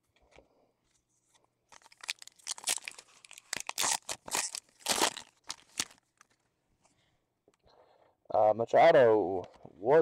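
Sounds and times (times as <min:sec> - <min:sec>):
foil wrapper tearing and crinkling: 0:01.7 - 0:06.3.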